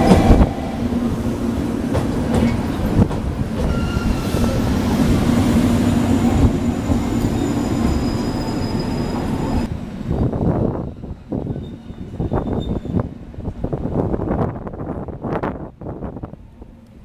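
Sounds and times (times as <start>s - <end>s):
train rumbling: 0.0s - 17.0s
faint brake squeals: 7.1s - 9.7s, 11.4s - 13.0s.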